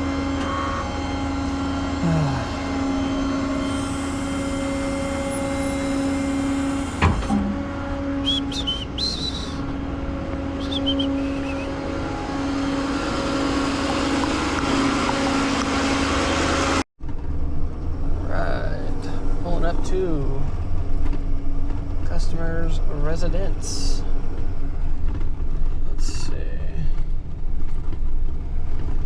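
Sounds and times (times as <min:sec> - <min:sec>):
road rumble: 0:00.0 - 0:29.0
truck engine drone: 0:00.0 - 0:29.0
brief high squeaks: 0:03.6 - 0:09.7, 0:10.6 - 0:13.1.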